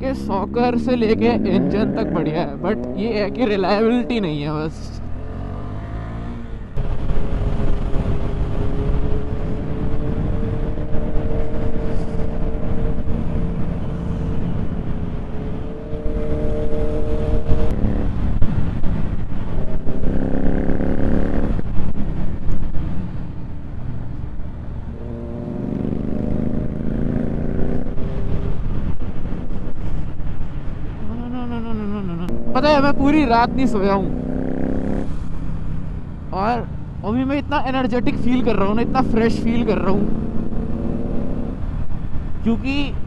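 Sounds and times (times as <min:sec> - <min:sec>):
motorcycle engine revving: 0:00.0 - 0:04.3, 0:04.9 - 0:22.6, 0:24.8 - 0:29.9, 0:30.9 - 0:36.1, 0:37.8 - 0:42.1
wind rumble on microphone: 0:05.0 - 0:33.1.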